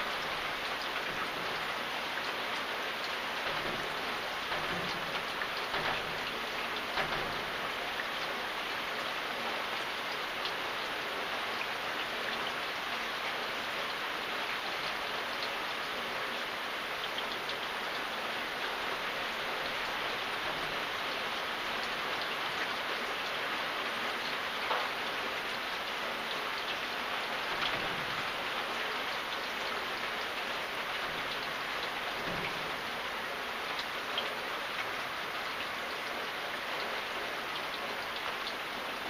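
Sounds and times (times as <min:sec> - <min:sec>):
raindrops ticking: 0:00.0 - 0:39.0
steady rain hiss: 0:00.0 - 0:39.0.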